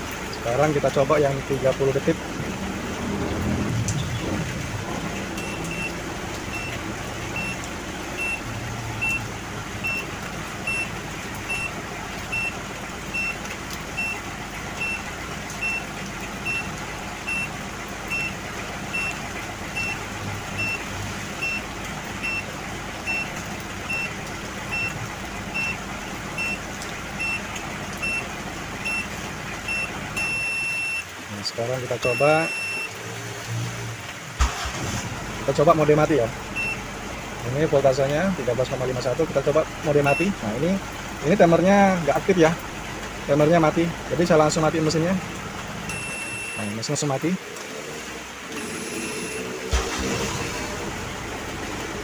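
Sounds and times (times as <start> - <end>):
diesel engine idling: 0.0 - 31.3, 34.4 - 46.6, 48.1 - 52.0
short high-pitched beeps: 29.7 - 31.0, 32.0 - 32.9, 45.9 - 46.7, 48.6 - 49.5.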